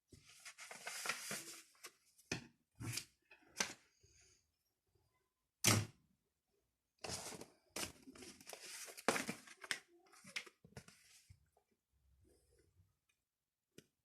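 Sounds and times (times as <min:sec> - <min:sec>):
paper rustling: 0:00.1 - 0:02.2, 0:07.0 - 0:11.3.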